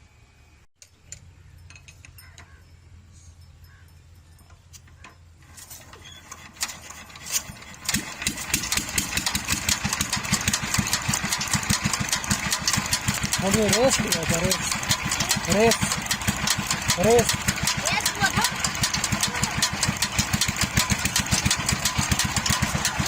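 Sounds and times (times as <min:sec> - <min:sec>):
diesel engine starting: 0:05.4 - 0:23.0.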